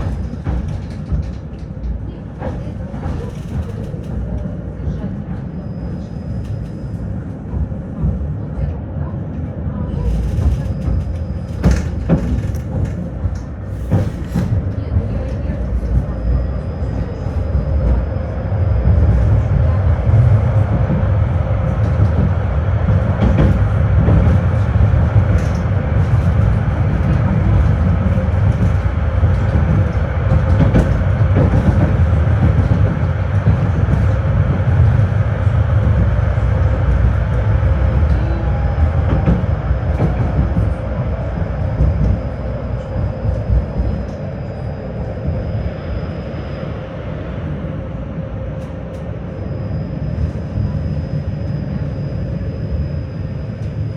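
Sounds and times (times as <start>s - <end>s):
tram wheels rumbling on rails: 0.0s - 53.9s.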